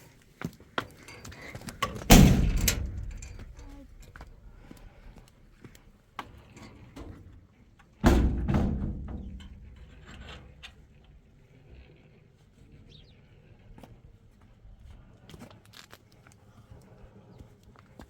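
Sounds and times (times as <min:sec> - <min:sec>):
heavy knock or thud: 0:08.0 - 0:09.7.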